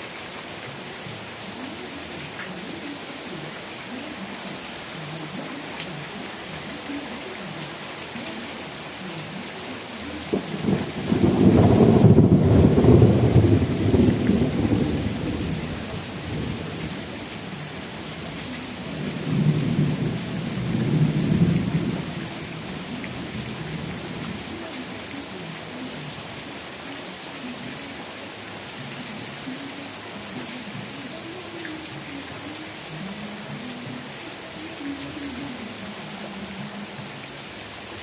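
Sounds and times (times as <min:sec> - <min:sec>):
heavy rain: 0:00.0 - 0:38.0
rolling thunder: 0:10.3 - 0:17.1.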